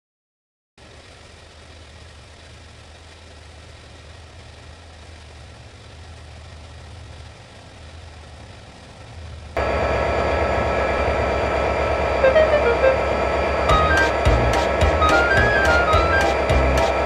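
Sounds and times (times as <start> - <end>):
large engine idling: 0.8 - 17.0
loud held tones: 9.6 - 17.0.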